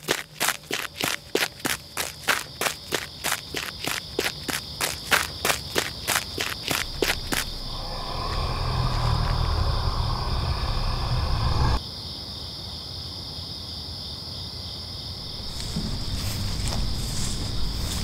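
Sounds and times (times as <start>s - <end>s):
crickets chirring: 0.0s - 18.0s
loud low rumble: 6.8s - 11.8s.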